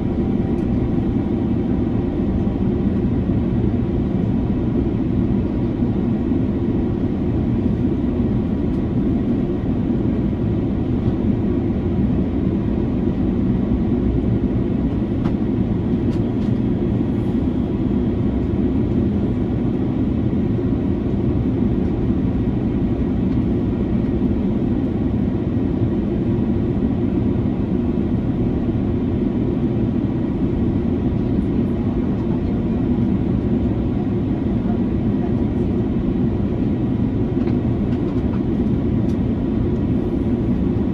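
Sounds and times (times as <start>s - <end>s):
airplane cabin noise: 0.0s - 40.9s.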